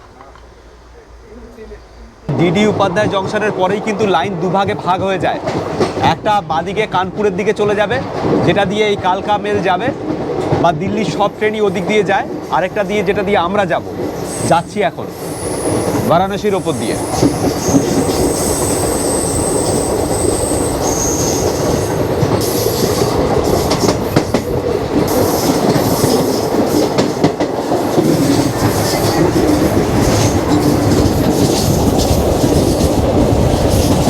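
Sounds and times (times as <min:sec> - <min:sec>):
train wheels rumbling on rails: 0:00.0 - 0:34.0
high wheel squeal: 0:15.2 - 0:22.8.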